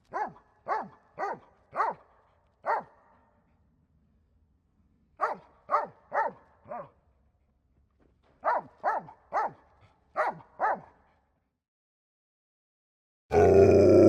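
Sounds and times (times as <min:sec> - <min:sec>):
dog barking: 0:00.0 - 0:03.3, 0:05.2 - 0:07.0, 0:08.4 - 0:11.2.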